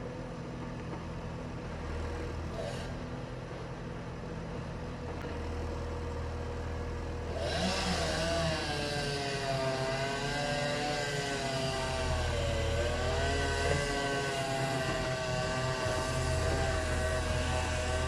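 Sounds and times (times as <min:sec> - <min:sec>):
low engine rumble: 0:00.0 - 0:07.4
chainsaw engine at high revs: 0:02.5 - 0:03.0, 0:07.3 - 0:18.0.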